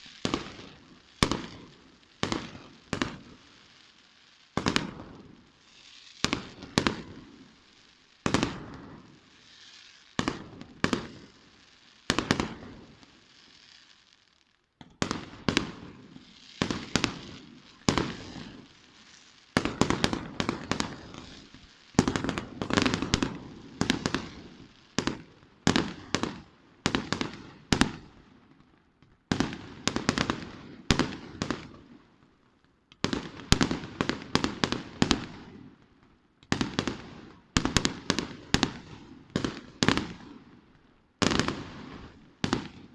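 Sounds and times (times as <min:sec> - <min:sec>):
firework bangs echoing: 0:00.0 - 0:03.4, 0:04.5 - 0:07.5, 0:08.2 - 0:09.6, 0:14.8 - 0:28.1, 0:41.2 - 0:42.9
crackling hiss: 0:00.0 - 0:42.9.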